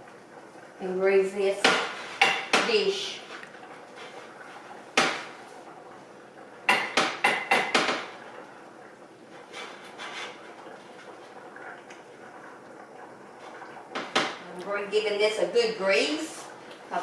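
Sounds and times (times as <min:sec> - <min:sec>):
baking dish knocking on counter: 0:06.7 - 0:08.1.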